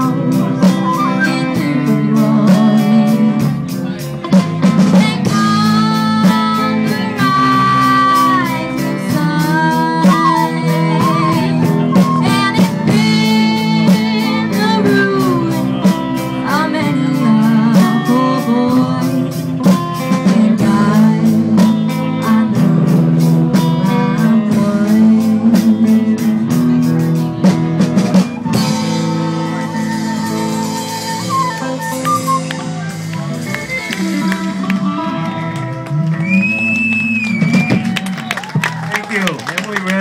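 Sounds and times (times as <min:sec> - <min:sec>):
person singing: 0:00.0 - 0:26.9, 0:32.8 - 0:36.1
drums and bass: 0:00.0 - 0:40.0
electric lead guitar: 0:00.0 - 0:40.0
flute wavering note: 0:28.4 - 0:34.6.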